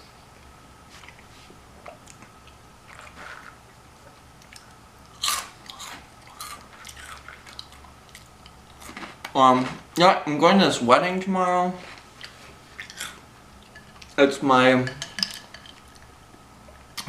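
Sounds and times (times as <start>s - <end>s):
faint chewing clicks: 0.4s - 9.4s
chewing crunchy snack: 0.9s - 9.8s, 12.2s - 14.2s.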